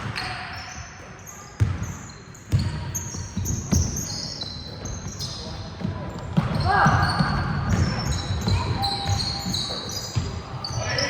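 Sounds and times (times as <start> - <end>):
shoe squeaks: 0.2 - 11.0
basketball bouncing: 1.6 - 1.9, 2.5 - 4.1, 5.8 - 10.4.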